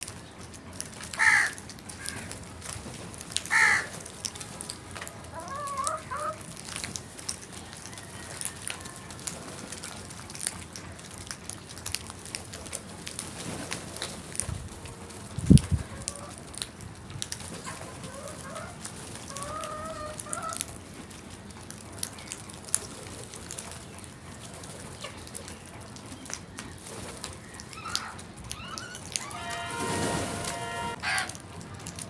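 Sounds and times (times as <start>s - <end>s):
crows cawing: 1.2s - 2.3s, 3.5s - 3.9s.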